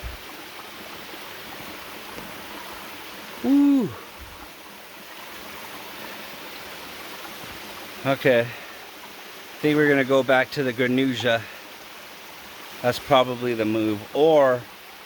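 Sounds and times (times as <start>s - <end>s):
water from small waterfall: 0.0s - 15.0s
man's short woo: 3.4s - 4.0s.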